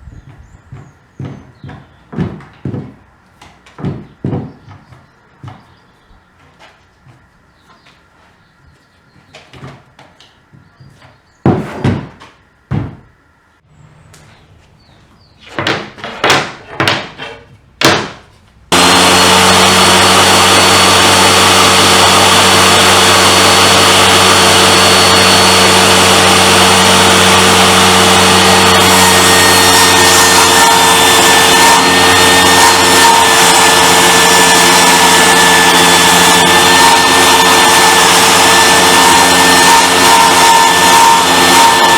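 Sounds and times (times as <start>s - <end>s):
wood knocking: 0.2s - 5.9s, 9.2s - 13.1s, 15.5s - 19.0s
power tool whining: 18.7s - 41.9s.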